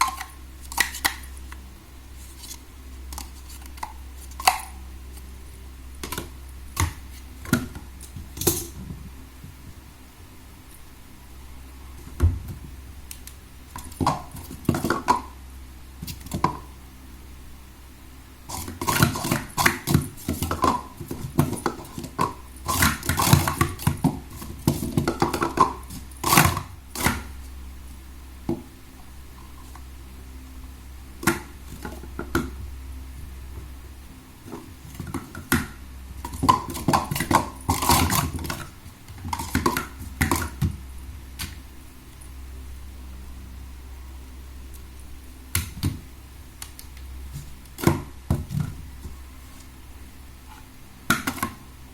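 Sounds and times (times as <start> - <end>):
plastic cups clacking: 18.5 - 27.3.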